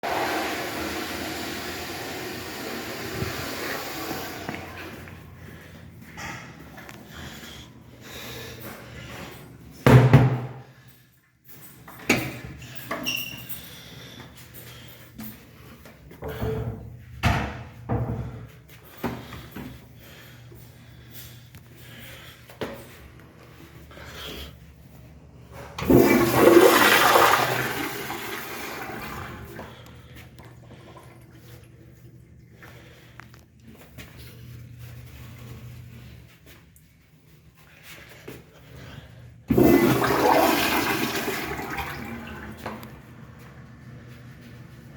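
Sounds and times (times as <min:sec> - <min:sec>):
toilet flushing: 0:00.0 - 0:05.1, 0:25.8 - 0:32.0, 0:39.5 - 0:43.1.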